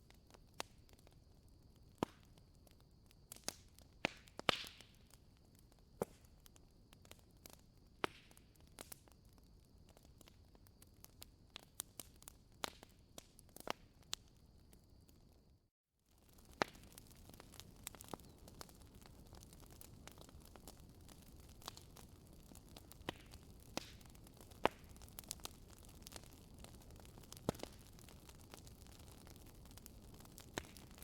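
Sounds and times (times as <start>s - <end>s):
wood fire crackling: 0.0s - 15.5s, 16.1s - 31.0s.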